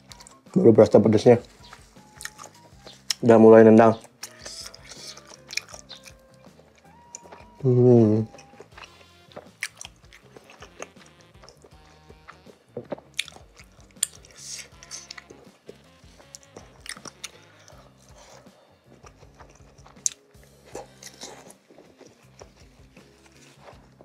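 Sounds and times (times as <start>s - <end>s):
chewing chewy dumplings: 0.0s - 24.0s
quiet background music: 0.0s - 24.0s
sharp mouth clicks: 4.0s - 7.4s.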